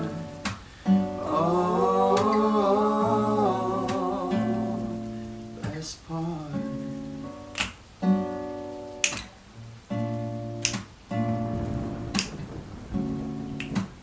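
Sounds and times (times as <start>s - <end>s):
acoustic guitar strumming: 0.0s - 14.0s
man singing a wavering note: 1.2s - 5.0s.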